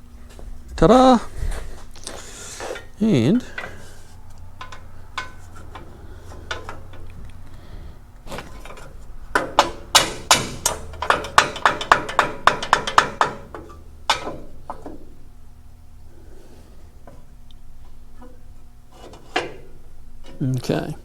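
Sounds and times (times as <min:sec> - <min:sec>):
sheet metal knocking: 0:02.7 - 0:07.3, 0:08.4 - 0:15.1.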